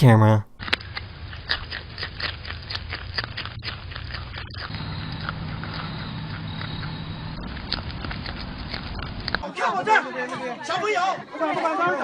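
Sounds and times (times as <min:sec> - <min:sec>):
animal chewing food crunching: 0:00.6 - 0:09.4
low steady hum: 0:03.5 - 0:09.4.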